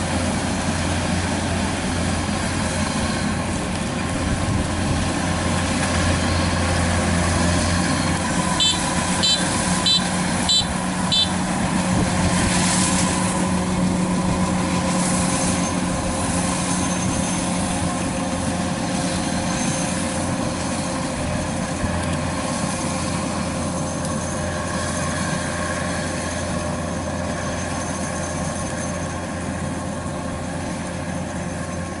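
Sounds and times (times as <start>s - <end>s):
combine harvester engine humming: 0.0s - 32.0s
short high beeps: 7.9s - 11.4s.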